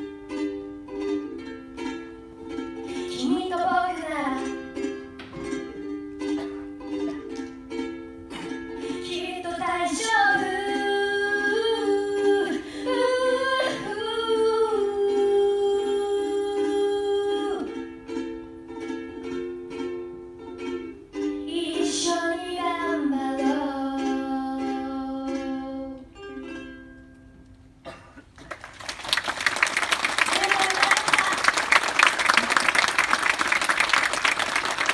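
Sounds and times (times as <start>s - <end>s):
ukulele strummed in chords: 0.0s - 27.8s.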